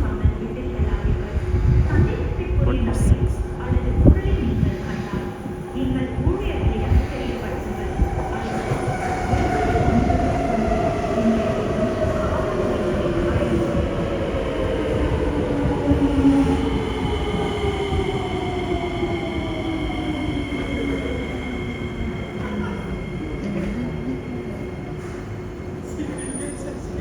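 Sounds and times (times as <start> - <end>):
train wheels rumbling: 0.0 - 27.0.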